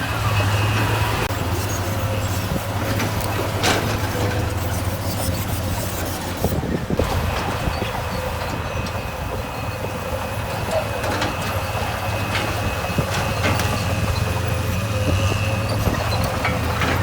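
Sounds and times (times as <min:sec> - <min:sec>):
heavy diesel machine running: 0:00.0 - 0:17.0
metal clanks and knocks: 0:02.0 - 0:09.0, 0:10.4 - 0:17.0.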